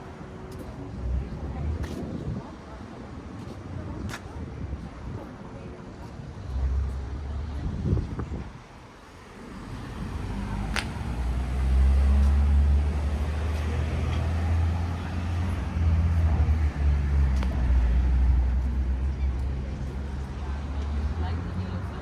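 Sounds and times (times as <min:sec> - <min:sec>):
vehicle engine rumbling: 0:06.1 - 0:22.0.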